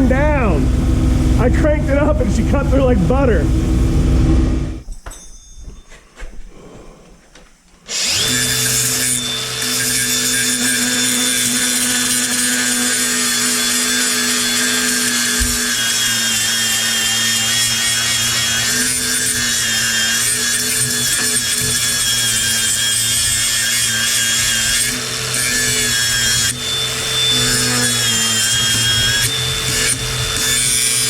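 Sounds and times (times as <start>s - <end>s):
power tool cutting metal: 7.9s - 31.0s.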